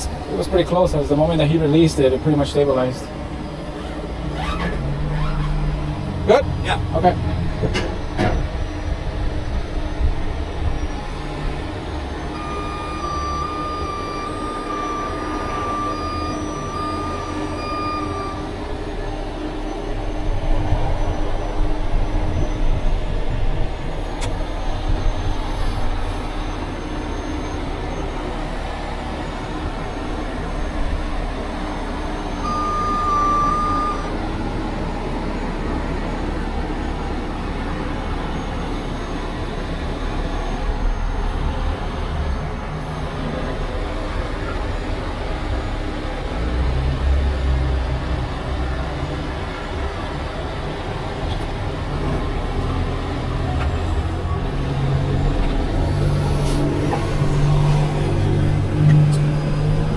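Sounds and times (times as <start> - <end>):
diesel engine rumbling: 0.0 - 59.9
warning beeper beeping: 10.8 - 23.1, 24.0 - 34.5.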